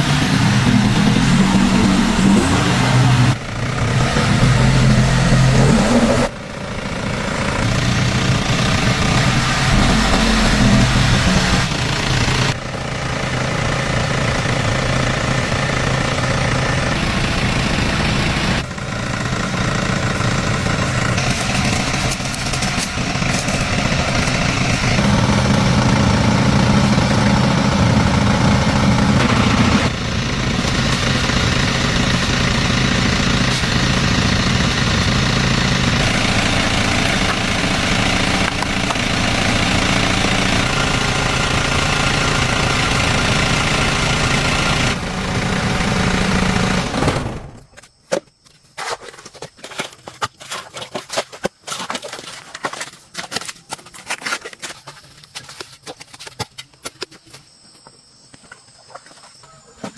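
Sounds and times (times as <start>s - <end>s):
engine running: 0.0s - 47.7s.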